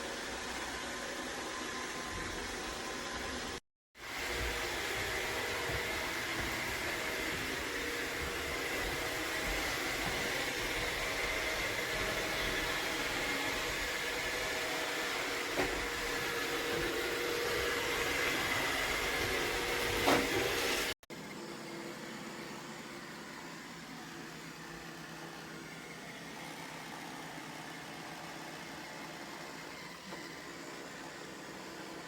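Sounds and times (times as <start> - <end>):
robot vacuum whirring: 0.2 - 20.9.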